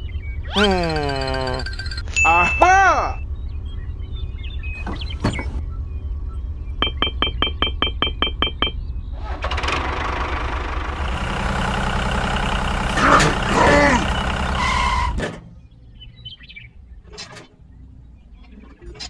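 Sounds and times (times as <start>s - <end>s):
diesel engine idling: 4.7s - 15.7s
diesel engine cranking clicks: 4.8s - 5.6s, 9.2s - 15.5s.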